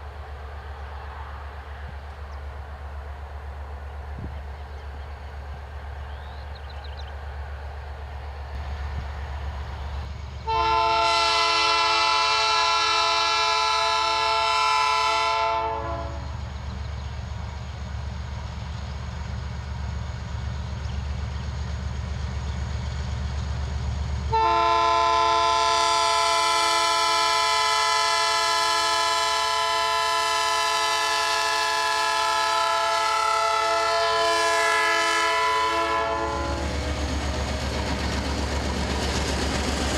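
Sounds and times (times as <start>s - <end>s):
locomotive engine rumble: 0.0s - 39.9s
train air horn blasts: 10.4s - 16.4s, 24.3s - 37.0s.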